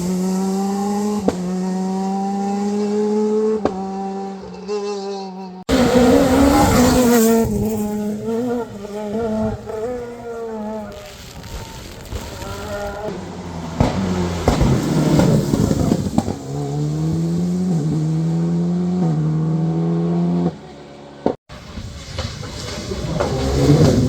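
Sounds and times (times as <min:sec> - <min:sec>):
car engine accelerating: 0:00.0 - 0:11.0, 0:12.1 - 0:24.0
engine sharp cracks: 0:13.1 - 0:16.7.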